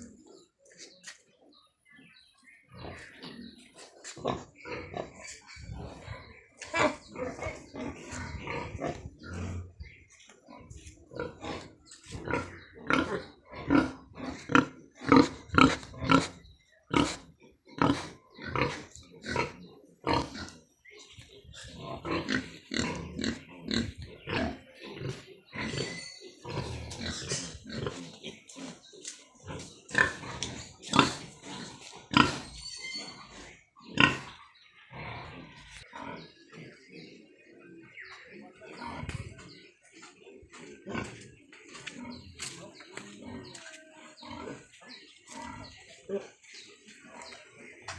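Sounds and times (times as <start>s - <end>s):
pigs calling: 2.7s - 39.7s.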